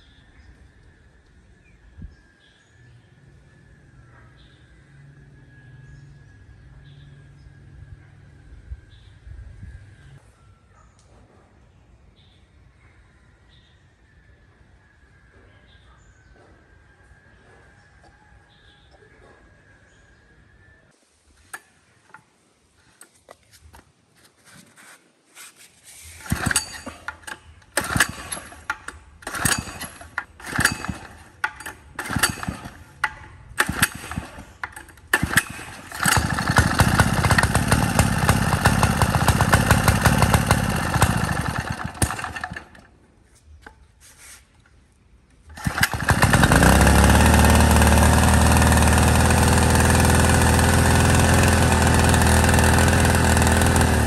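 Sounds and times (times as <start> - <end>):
small diesel engine starting and running: 0.0 - 10.2, 26.0 - 43.8, 45.3 - 54.0.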